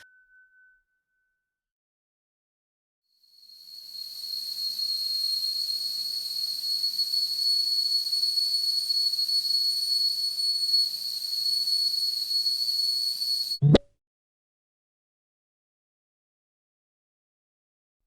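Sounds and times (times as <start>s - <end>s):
kettle whistling: 3.5s - 13.8s
steam hissing: 3.7s - 13.6s.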